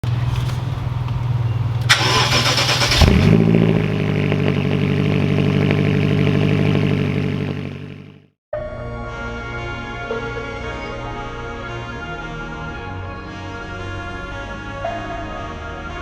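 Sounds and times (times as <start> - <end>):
car engine idling: 0.0 - 8.2
starter motor cranking: 0.2 - 3.4.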